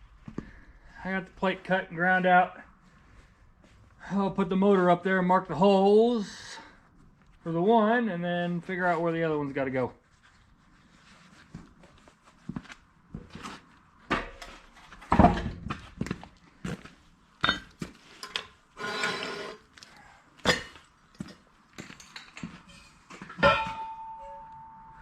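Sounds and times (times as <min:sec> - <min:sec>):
metal scrape: 0:18.2 - 0:19.7
metal clunks and clinks: 0:22.0 - 0:25.0.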